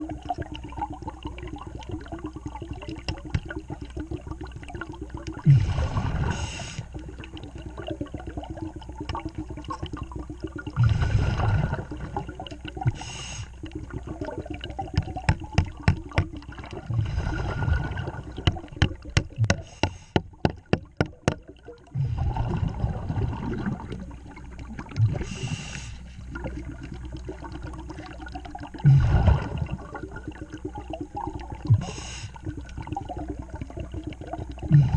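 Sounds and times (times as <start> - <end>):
diver exhaling bubbles: 5.3 - 20.4, 21.9 - 34.9.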